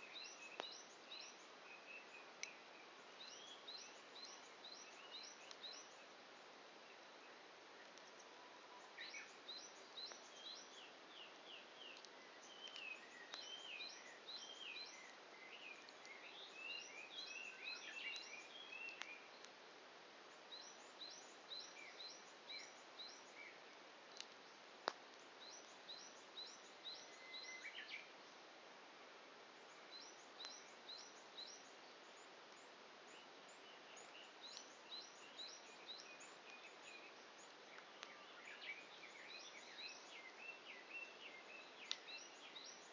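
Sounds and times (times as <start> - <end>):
birds chirping: 0.0 - 19.5, 20.2 - 28.5, 29.5 - 42.9
soft steady hiss: 0.0 - 42.9
wood fire popping: 24.0 - 25.9.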